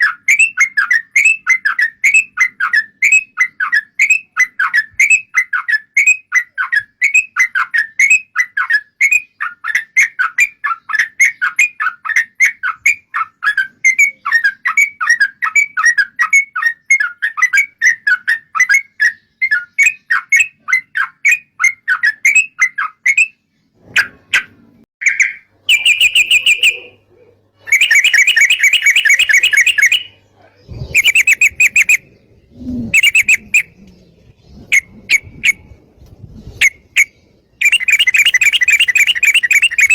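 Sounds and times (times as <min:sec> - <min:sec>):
bird singing bubbly chirps: 0:25.0 - 0:27.0, 0:27.7 - 0:35.6, 0:36.6 - 0:39.9.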